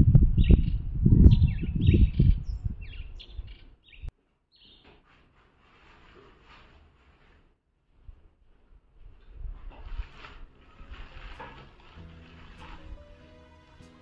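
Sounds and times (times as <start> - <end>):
wind rumble on microphone: 0.0 - 4.1, 8.0 - 11.4
birds chirping: 0.4 - 4.9.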